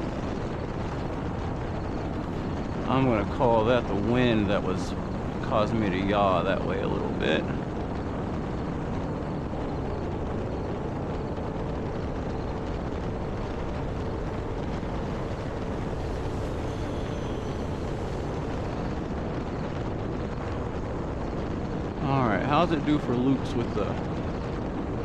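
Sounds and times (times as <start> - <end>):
rushing noise: 0.0 - 25.0.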